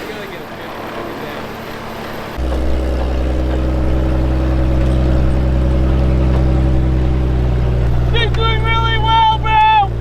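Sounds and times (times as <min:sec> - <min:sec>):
supercharged engine running: 0:02.3 - 0:10.0.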